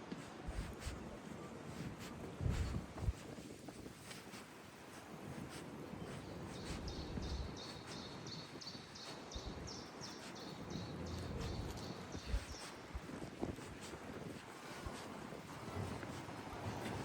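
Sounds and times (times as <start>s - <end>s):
city background hum: 4.0s - 12.7s.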